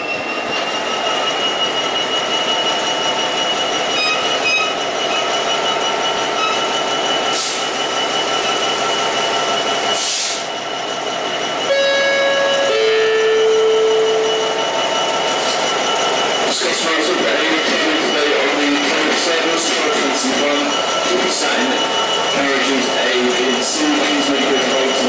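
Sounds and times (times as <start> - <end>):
train wheel squeal: 0.0 - 25.0
two-tone train horn: 11.7 - 14.4.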